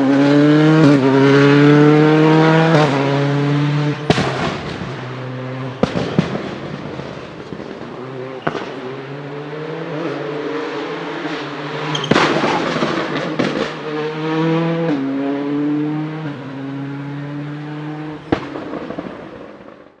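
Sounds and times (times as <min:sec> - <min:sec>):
rally car engine revving: 0:00.0 - 0:19.7
backfire bangs: 0:04.0 - 0:09.0, 0:12.0 - 0:13.8, 0:18.3 - 0:19.8.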